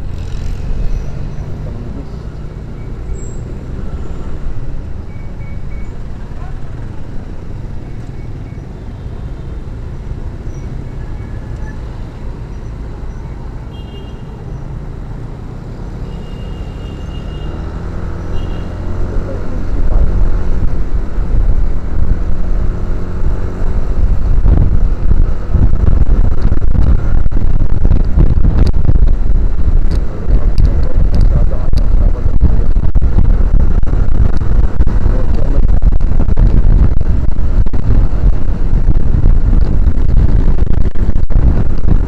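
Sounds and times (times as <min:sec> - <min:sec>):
road noise: 0:00.0 - 0:42.0
motorcycle engine accelerating: 0:14.7 - 0:42.0
low rumble on microphone: 0:18.9 - 0:42.0.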